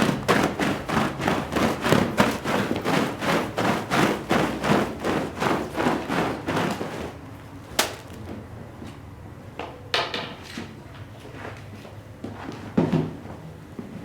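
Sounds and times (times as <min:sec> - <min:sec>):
cleaning strokes on a shag rug: 0:00.0 - 0:07.2.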